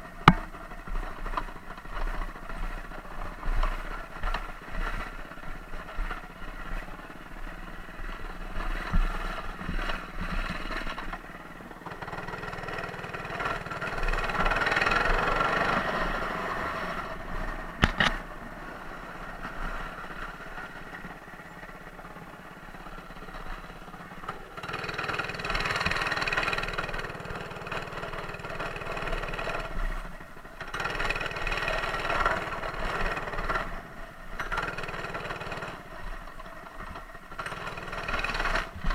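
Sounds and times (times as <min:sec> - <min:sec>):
small engine running: 0:00.0 - 0:38.9
sharp click: 0:17.8 - 0:18.2.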